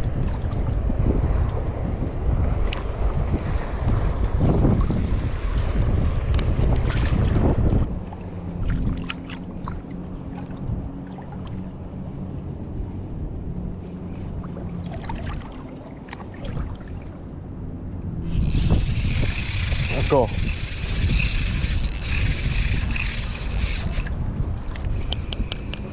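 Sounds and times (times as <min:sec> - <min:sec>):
wind buffeting microphone: 0:00.0 - 0:25.9
shallow water clicks and splashes: 0:14.9 - 0:16.8.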